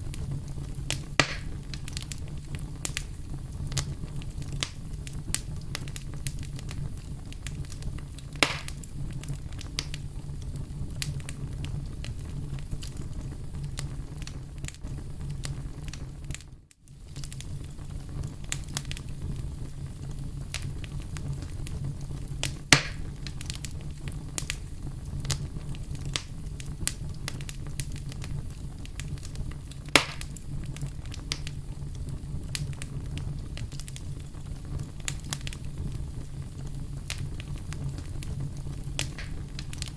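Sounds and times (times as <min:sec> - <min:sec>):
fire popping: 0:00.0 - 0:39.9
wood fire crackling: 0:00.0 - 0:39.9.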